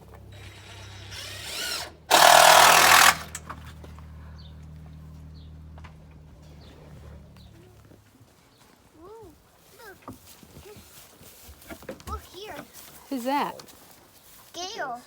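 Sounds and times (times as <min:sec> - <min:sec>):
power drill driving screw into wood: 0:00.3 - 0:03.6.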